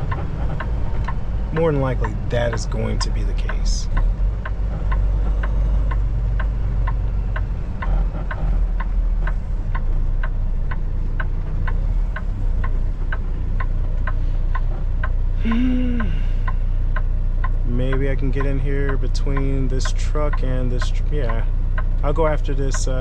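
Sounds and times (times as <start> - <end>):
diesel engine idling: 0.0 - 23.0
turn signal clicking: 0.0 - 23.0.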